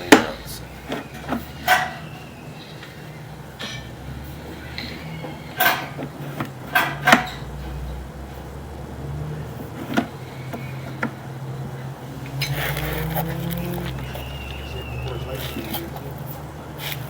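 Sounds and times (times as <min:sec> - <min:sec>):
sharp knocks and clatters: 0:04.9 - 0:07.9.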